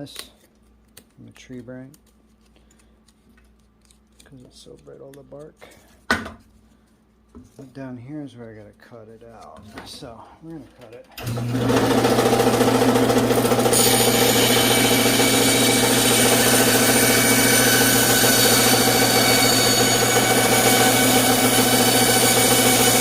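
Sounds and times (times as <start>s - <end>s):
electric saw cutting wood: 11.2s - 23.0s.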